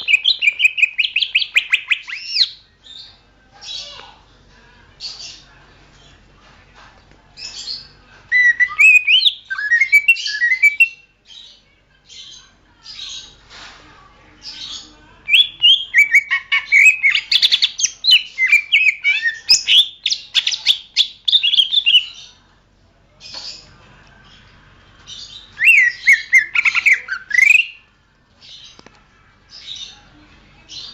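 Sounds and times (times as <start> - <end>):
bird whistling song: 0.0 - 2.6, 8.3 - 11.0, 15.3 - 22.2, 25.6 - 27.8.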